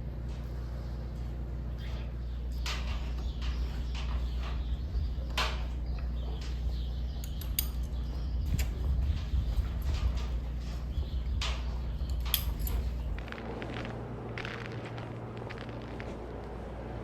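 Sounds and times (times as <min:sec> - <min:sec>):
low machine hum: 0:00.0 - 0:17.0
metal clinks and clatters: 0:11.4 - 0:13.1.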